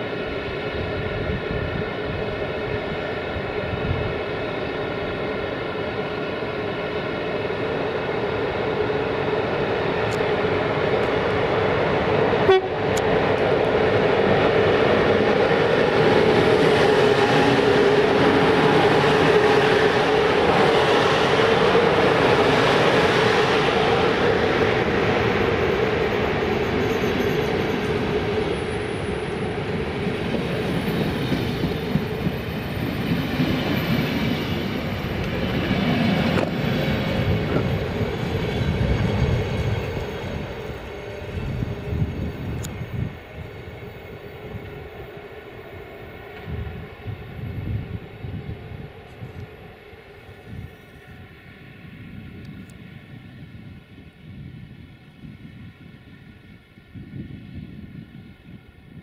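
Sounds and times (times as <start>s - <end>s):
electric locomotives whining: 0.0s - 59.0s
train coaches rumbling and clattering: 0.0s - 59.0s.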